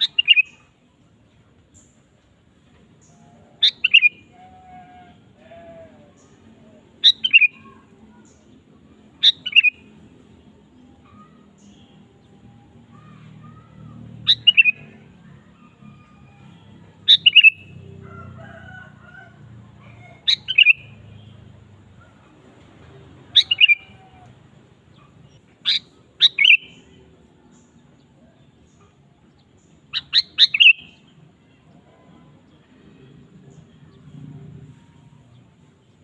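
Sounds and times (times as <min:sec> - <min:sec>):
bulbul calling: 0:03.6 - 0:04.3, 0:09.2 - 0:09.8, 0:17.1 - 0:17.7, 0:20.2 - 0:21.2, 0:23.4 - 0:24.1, 0:25.3 - 0:26.8, 0:29.9 - 0:31.0.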